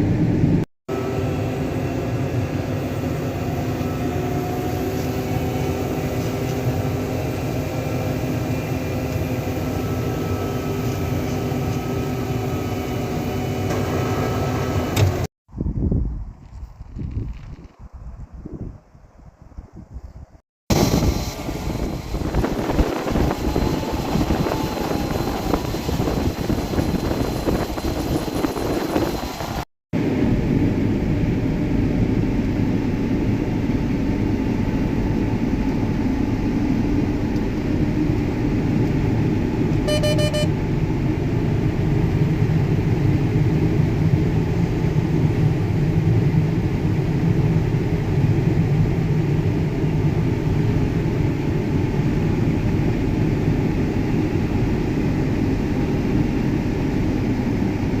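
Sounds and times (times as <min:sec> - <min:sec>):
combine harvester drone: 0:00.0 - 0:15.3, 0:20.7 - 0:58.0
short beep: 0:39.9 - 0:40.5.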